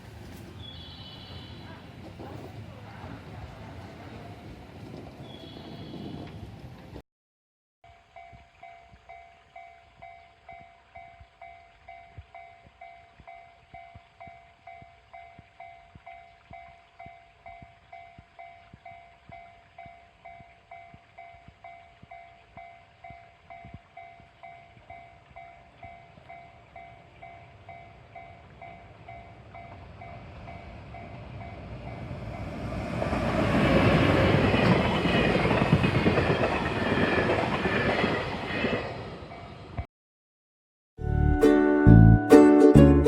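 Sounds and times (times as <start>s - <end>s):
train wheels rumbling on rails: 1.7s - 7.0s, 17.5s - 39.8s.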